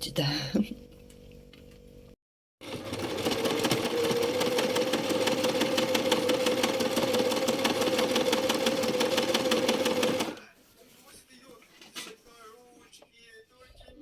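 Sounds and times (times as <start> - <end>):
sewing machine running: 2.6 - 10.4.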